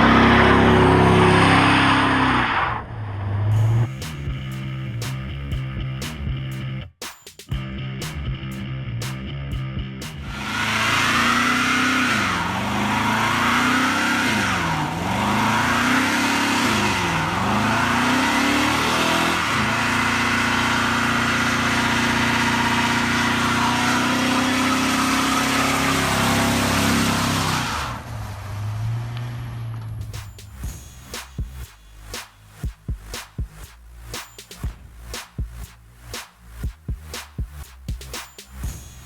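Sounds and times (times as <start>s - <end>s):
car engine revving hard: 0.0s - 4.3s, 10.1s - 30.4s.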